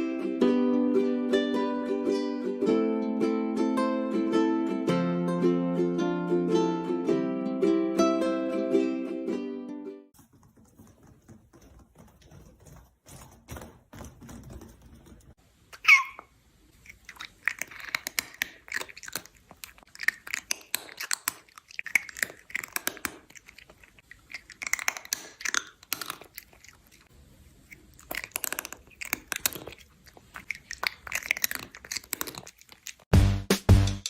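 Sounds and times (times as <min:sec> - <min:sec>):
crunching and chewing: 0:10.1 - 0:33.1.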